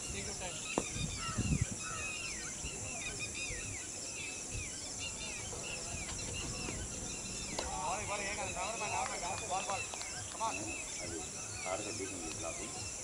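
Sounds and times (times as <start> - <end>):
birds chirping: 0.0 - 13.0
high insect drone: 0.0 - 13.0.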